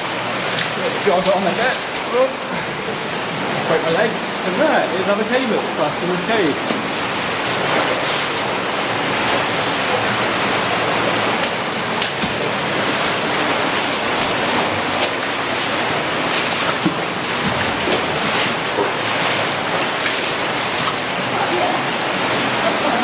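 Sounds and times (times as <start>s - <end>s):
stream rushing over rock: 0.0s - 23.0s.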